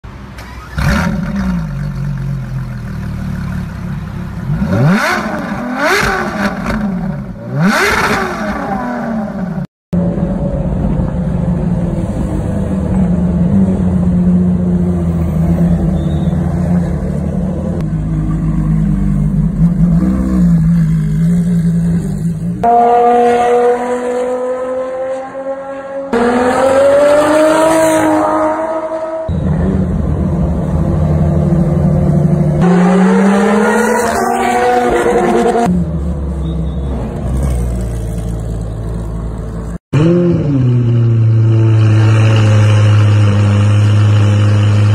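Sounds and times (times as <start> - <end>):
sports car engine revving: 3.1 - 9.6.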